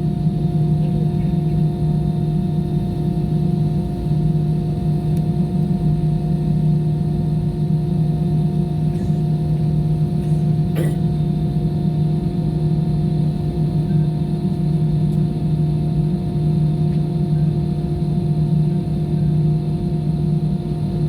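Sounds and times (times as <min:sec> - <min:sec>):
airliner engine drone in cabin: 0:00.0 - 0:21.0.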